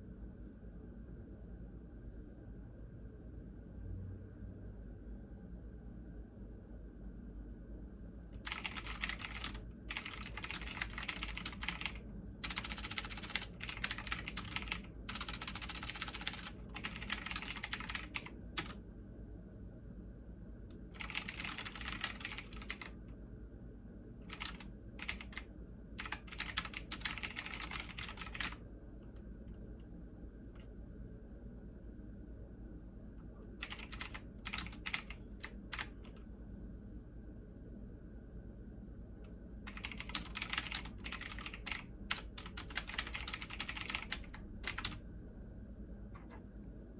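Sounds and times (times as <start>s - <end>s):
computer keyboard typing: 8.4s - 18.8s, 20.9s - 23.0s, 24.3s - 29.2s, 33.6s - 36.2s, 39.7s - 45.0s.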